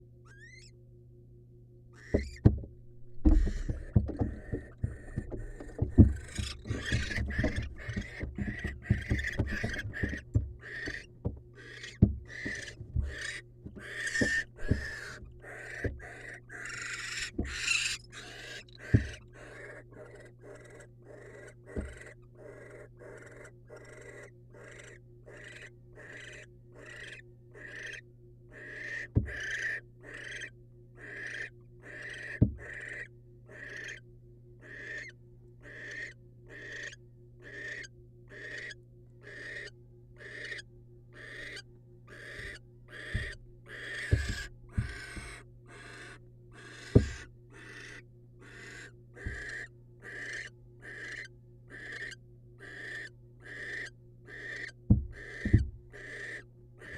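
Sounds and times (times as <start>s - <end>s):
low electrical hum: 0.0s - 56.9s
owl hissing begging calls: 0.3s - 0.7s, 4.4s - 34.0s, 34.6s - 56.9s
sharp knocks in nest box: 2.1s - 18.0s, 18.8s - 19.2s, 29.1s - 29.4s, 42.4s - 43.4s, 44.0s - 45.4s, 46.9s - 47.2s, 54.9s - 55.8s.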